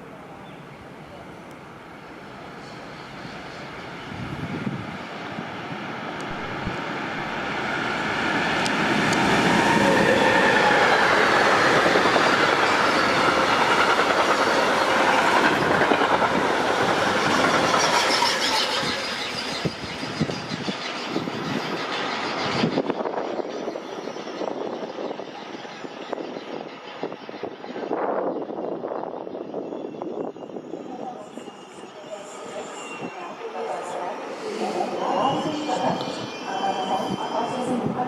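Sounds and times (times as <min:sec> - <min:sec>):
train rolling past: 0:00.0 - 0:38.0.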